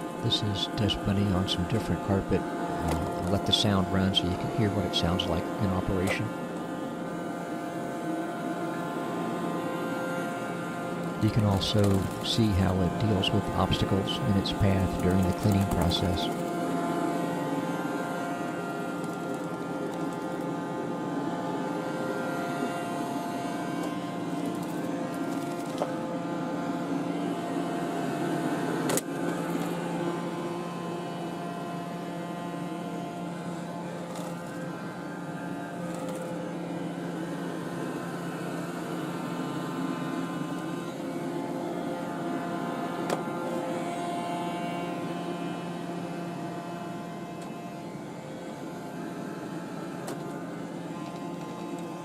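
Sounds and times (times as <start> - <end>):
robot vacuum humming: 0.0 - 52.0
robot vacuum motor whir: 2.8 - 3.3.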